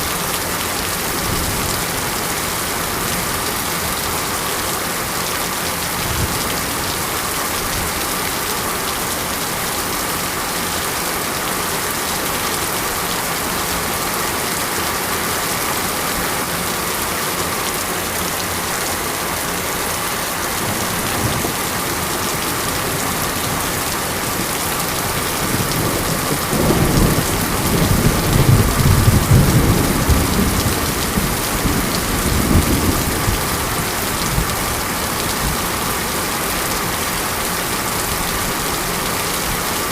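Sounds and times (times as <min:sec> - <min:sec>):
heavy rain hissing: 0:00.0 - 0:39.9
thunder rumbling: 0:20.6 - 0:34.6.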